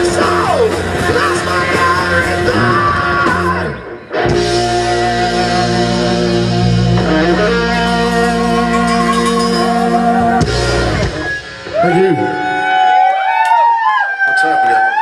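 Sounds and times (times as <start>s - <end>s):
person singing: 0.0s - 3.8s
electric guitars ringing chords: 0.0s - 13.0s.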